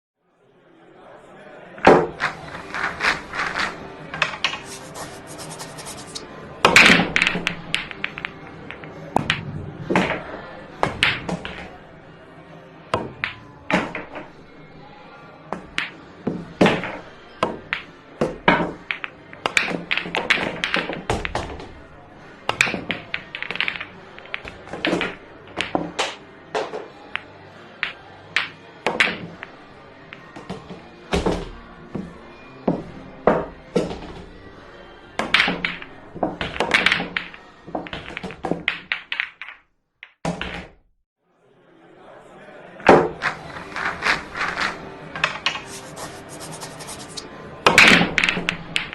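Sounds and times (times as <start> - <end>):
billiard balls clacking: 35.2 - 39.6, 42.9 - 47.2.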